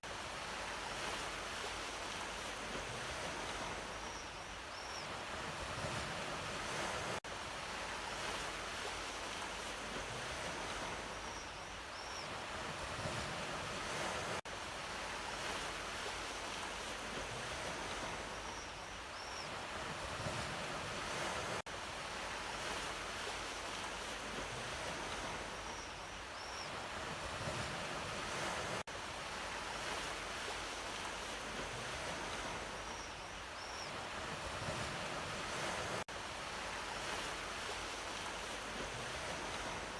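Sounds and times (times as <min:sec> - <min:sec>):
sea waves washing in: 0:00.0 - 0:04.2, 0:05.1 - 0:11.4, 0:12.3 - 0:18.6, 0:19.5 - 0:26.1, 0:26.7 - 0:39.9.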